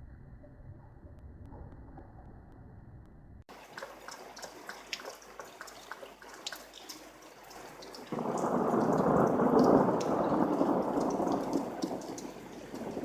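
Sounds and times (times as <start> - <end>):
raindrop ticks: 3.5 - 13.0
steady rain hiss: 3.6 - 13.0
loud rushing downpour: 7.1 - 13.0.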